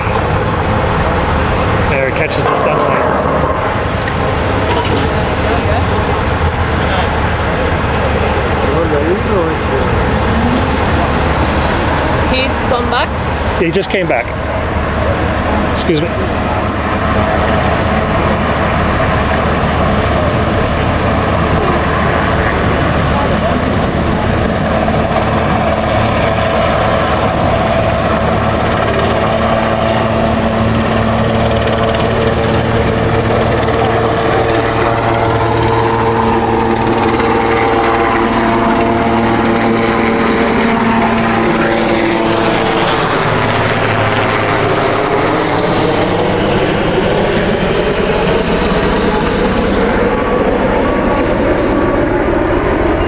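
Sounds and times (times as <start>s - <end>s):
helicopter rotor and turbine: 0.0s - 53.0s.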